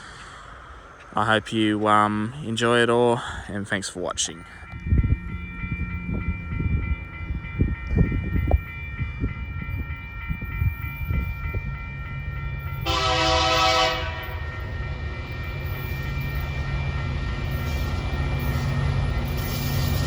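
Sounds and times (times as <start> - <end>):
diesel locomotive rumble: 0.0 - 20.0
train horn blast: 12.8 - 14.4.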